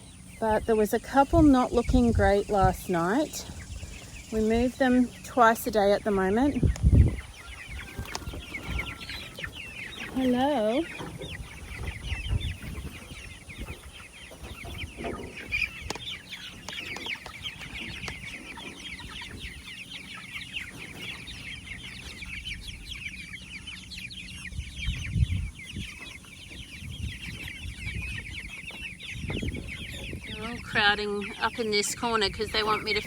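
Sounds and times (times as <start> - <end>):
chicks peeping and cheeping: 0.0 - 33.0.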